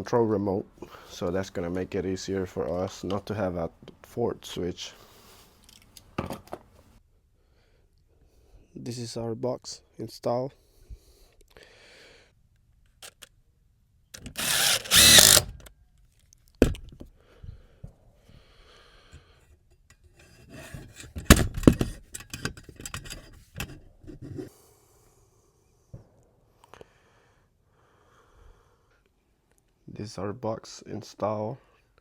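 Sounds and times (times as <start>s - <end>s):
tools and hardware rattling: 14.2s - 15.6s, 20.7s - 23.8s
power drill running: 14.2s - 15.7s.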